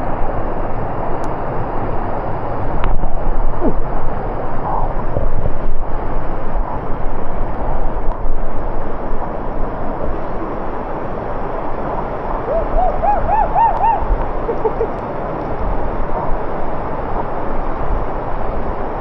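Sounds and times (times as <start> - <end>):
waterfall rushing: 8.2 - 19.0
bird chirping rising notes: 12.5 - 14.8.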